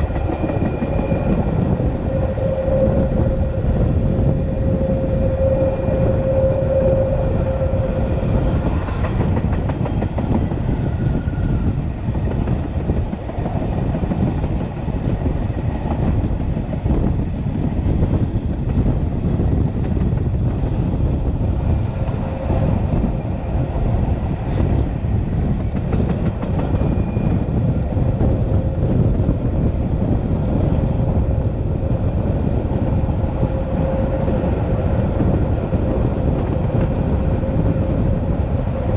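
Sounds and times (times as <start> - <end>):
train wheel squeal: 0.0 - 16.2, 18.9 - 38.9
train wheels rumbling on rail: 0.0 - 38.9.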